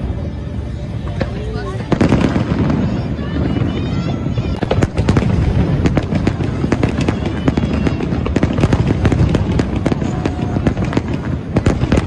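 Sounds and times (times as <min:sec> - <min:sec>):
continuous rumble: 0:00.0 - 0:12.0.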